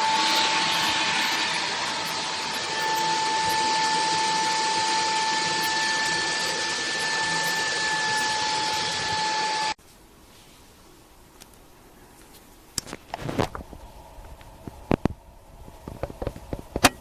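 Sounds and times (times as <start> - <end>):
stick vacuum running: 0.0 - 9.8.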